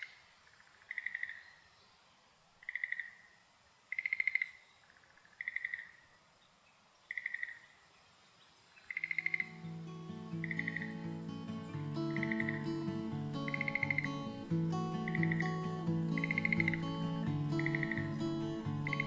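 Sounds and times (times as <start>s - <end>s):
frog rattling croaks: 0.0s - 1.6s, 2.6s - 6.0s, 7.1s - 7.8s, 8.8s - 9.6s, 10.4s - 11.0s, 12.1s - 12.6s, 13.4s - 14.2s, 15.0s - 15.6s, 16.2s - 17.0s, 17.6s - 18.2s
faint hiss: 0.0s - 19.0s
background music: 9.5s - 19.0s.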